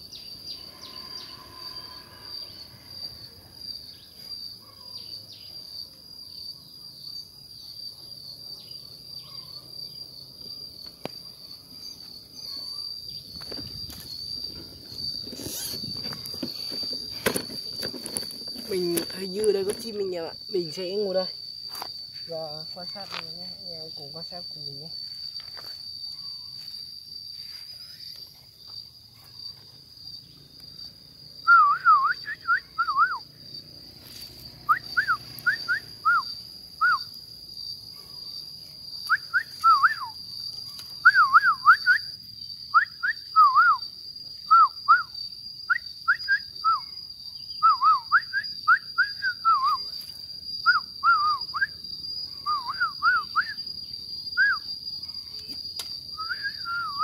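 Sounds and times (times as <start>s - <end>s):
high-pitched insect drone: 0.0s - 57.0s
bird whistling song: 31.4s - 33.2s, 34.6s - 37.1s, 39.1s - 40.2s, 41.0s - 42.1s, 42.7s - 43.8s, 44.5s - 46.8s, 47.6s - 49.9s, 50.6s - 51.8s, 52.4s - 53.6s, 54.4s - 54.7s, 56.1s - 57.0s.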